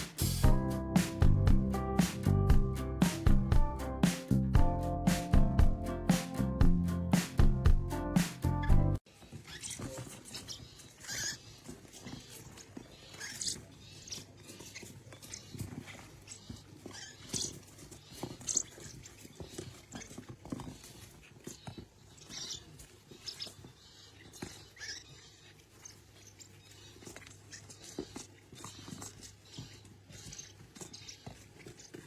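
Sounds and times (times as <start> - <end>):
parrot chirping: 22.1 - 32.0.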